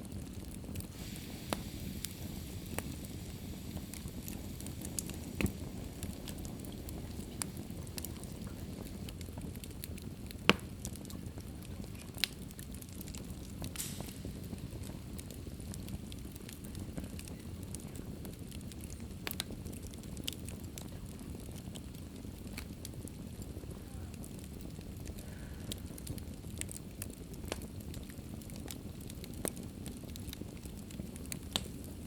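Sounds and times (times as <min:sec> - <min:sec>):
fire crackling and popping: 0:00.0 - 0:32.0
fire flames rushing: 0:00.0 - 0:32.0
short hiss: 0:00.9 - 0:08.1, 0:13.7 - 0:14.6.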